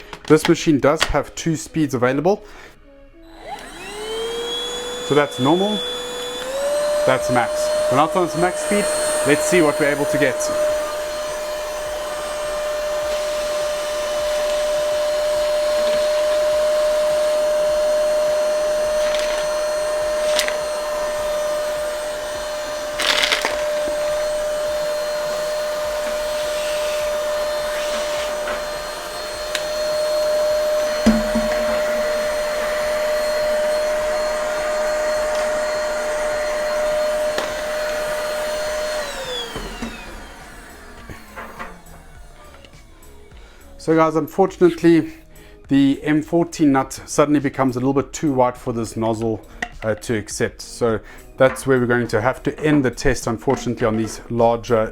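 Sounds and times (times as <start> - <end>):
vacuum cleaner motor whine: 3.2 - 44.0
low knock: 31.0 - 32.5.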